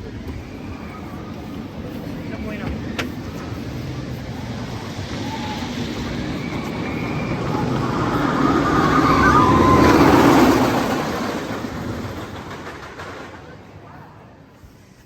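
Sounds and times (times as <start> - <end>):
roller coaster rumbling on track: 0.0 - 15.0.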